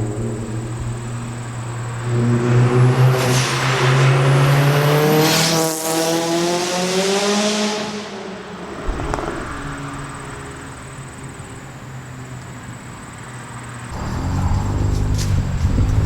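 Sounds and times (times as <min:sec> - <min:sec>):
car engine accelerating past: 0:00.0 - 0:08.3, 0:13.9 - 0:16.0.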